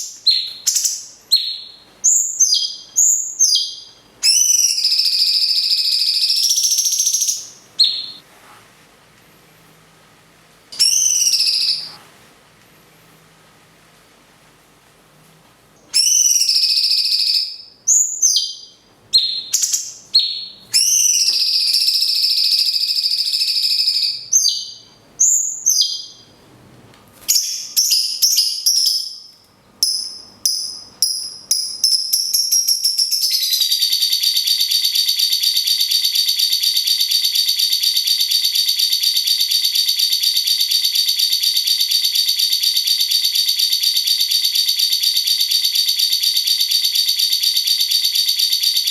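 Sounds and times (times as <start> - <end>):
bird whistled calls: 0.0 - 8.2, 10.8 - 12.0, 15.9 - 26.3
lovebird trilling chatter: 10.8 - 11.9.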